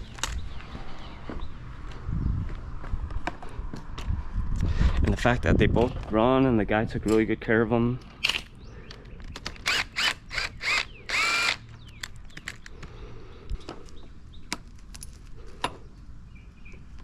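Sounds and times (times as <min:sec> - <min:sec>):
power driver motor whirring: 0:09.6 - 0:11.6.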